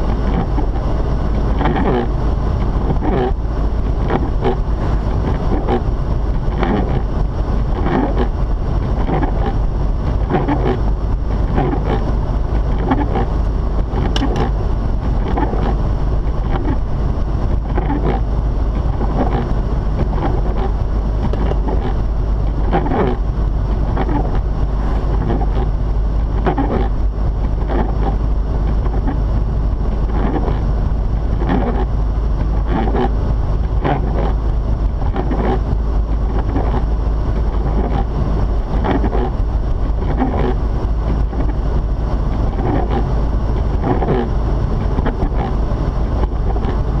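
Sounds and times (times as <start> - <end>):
engine tyres and wind rumble: 0.0 - 47.0.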